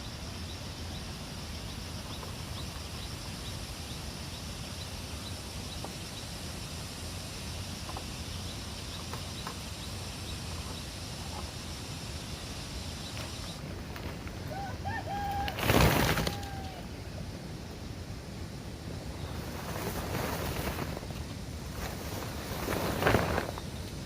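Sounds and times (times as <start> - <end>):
steady background hiss: 0.0 - 24.0.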